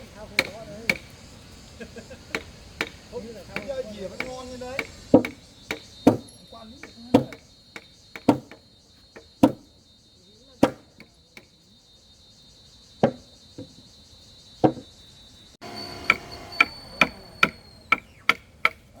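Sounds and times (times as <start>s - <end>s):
tool striking wood: 0.0s - 1.2s, 2.3s - 9.7s, 10.6s - 11.6s, 13.0s - 13.8s, 14.6s - 14.9s, 15.6s - 19.0s
high insect buzz: 0.0s - 19.0s.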